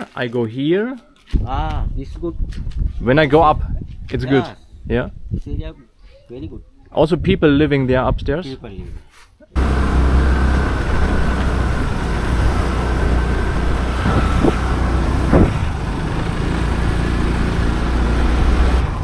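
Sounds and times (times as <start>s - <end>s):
motorcycle engine running: 9.6s - 19.0s.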